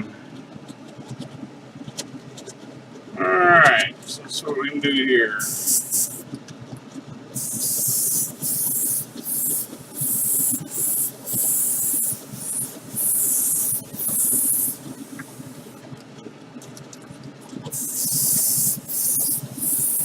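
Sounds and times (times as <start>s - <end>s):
spray paint hissing bursts: 5.4s - 6.2s, 7.4s - 15.8s, 17.7s - 20.0s.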